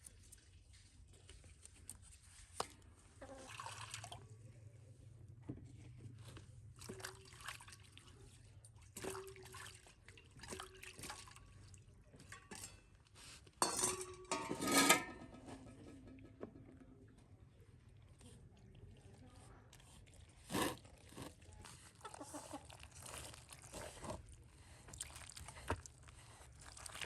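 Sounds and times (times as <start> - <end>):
water pouring and splashing: 2.6 - 4.2, 6.8 - 12.7, 24.9 - 27.0.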